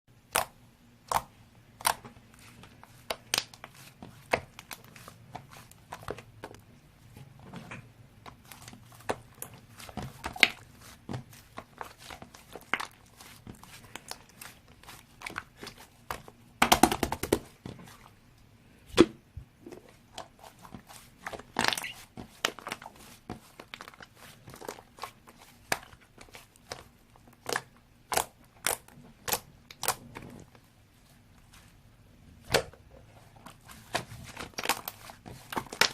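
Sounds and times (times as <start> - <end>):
slime squished by hand: 20.1 - 30.4.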